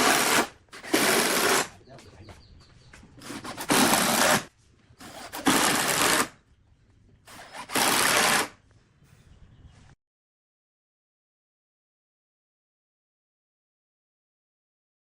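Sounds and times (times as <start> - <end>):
power tool bursts: 0.0 - 1.7, 3.3 - 6.3, 7.3 - 8.6.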